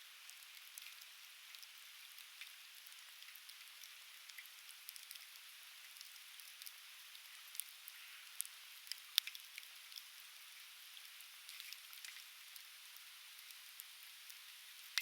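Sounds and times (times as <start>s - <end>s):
steady fire hiss: 0.0s - 15.0s
campfire crackling: 0.3s - 10.1s.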